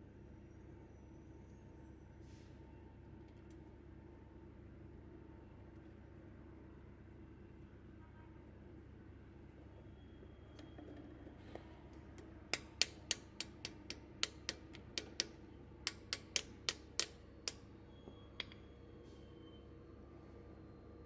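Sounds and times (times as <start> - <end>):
metallic clicks of hand tools: 12.5 - 17.6.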